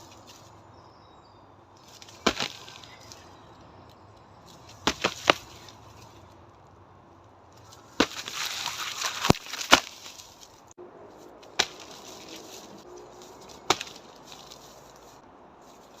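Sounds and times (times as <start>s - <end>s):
rustling: 0.0s - 0.6s, 4.4s - 16.0s
strikes knocking on tree trunk: 2.2s - 2.7s, 4.8s - 5.6s, 11.6s - 12.0s, 13.6s - 14.1s.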